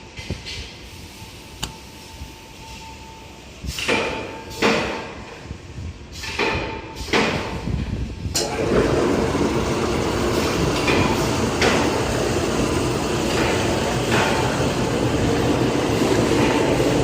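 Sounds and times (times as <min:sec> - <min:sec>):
machine humming: 0:08.4 - 0:17.0.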